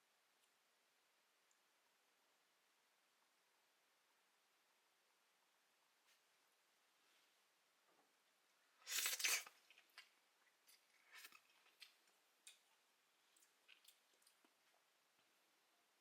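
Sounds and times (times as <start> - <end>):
packet tearing open: 8.9 - 9.6.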